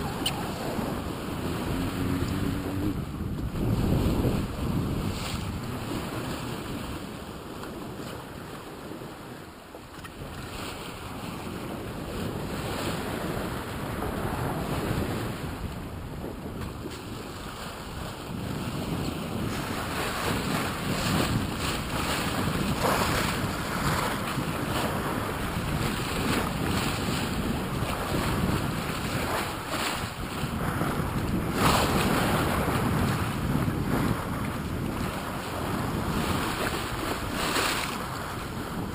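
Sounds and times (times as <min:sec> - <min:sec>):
water rushing along a hull: 0:00.0 - 0:38.9
wind buffeting microphone: 0:00.0 - 0:38.9.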